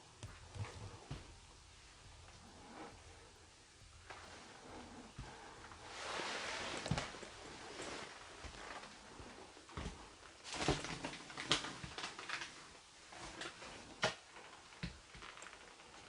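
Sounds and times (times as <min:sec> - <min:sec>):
faint taps and rustles: 0:00.1 - 0:01.4.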